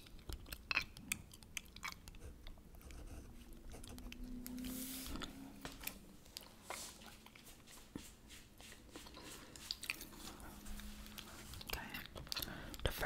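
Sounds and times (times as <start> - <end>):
gum chewing mouth smacks: 0.0 - 2.7, 11.2 - 12.9.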